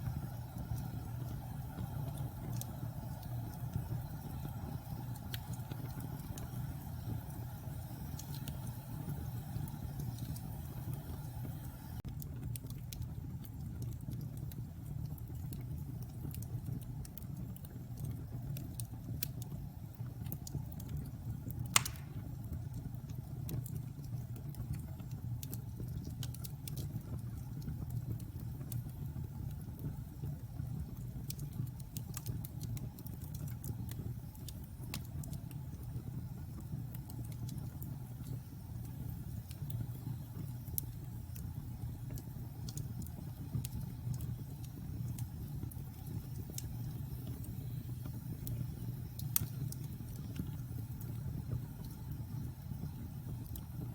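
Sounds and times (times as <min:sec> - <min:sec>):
fire crackling: 0:00.0 - 0:53.9
wood fire rumbling: 0:00.0 - 0:53.9
loud pop from fire: 0:21.7 - 0:22.4.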